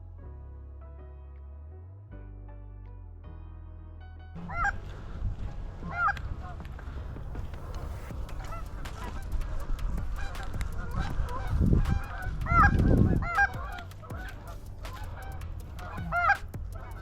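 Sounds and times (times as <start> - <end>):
low rumble: 0.0 - 17.0
geese honking: 8.4 - 17.0.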